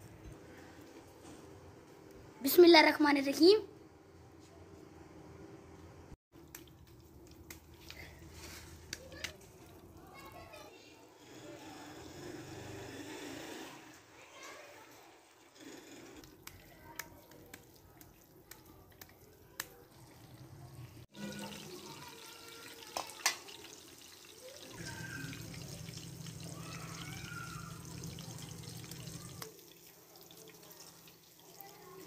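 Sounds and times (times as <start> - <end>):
oil crackling and sizzling: 6.3 - 10.7, 16.2 - 32.0
wet hands patting meat: 6.4 - 9.6, 16.2 - 19.8.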